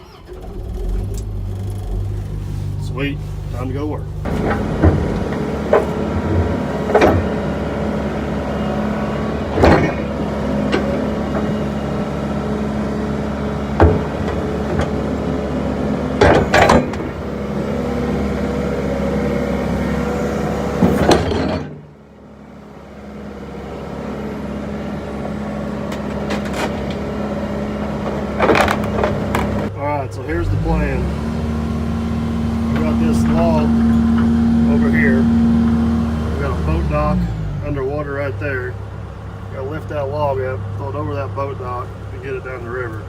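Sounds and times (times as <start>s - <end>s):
excavator diesel engine running: 0.0s - 43.0s
sharp machine knocks: 16.2s - 17.2s.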